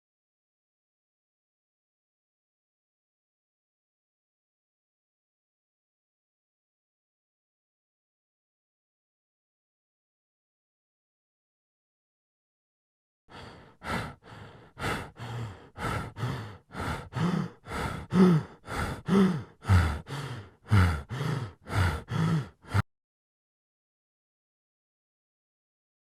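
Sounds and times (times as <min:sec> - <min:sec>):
person breathing hard and gasping: 0:13.3 - 0:22.9.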